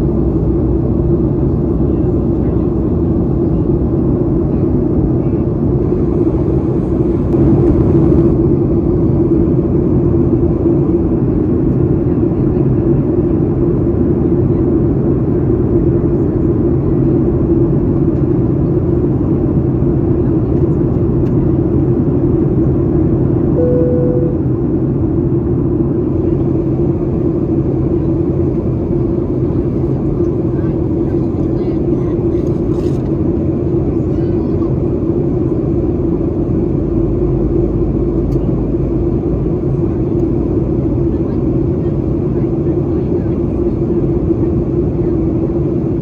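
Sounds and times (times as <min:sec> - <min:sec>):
airplane cabin drone: 0:00.0 - 0:46.0
single tone: 0:23.6 - 0:24.6.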